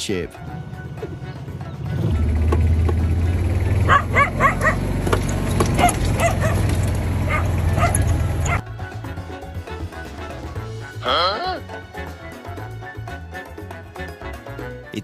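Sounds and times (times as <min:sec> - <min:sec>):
dog yipping: 0:03.9 - 0:04.9, 0:05.7 - 0:08.6.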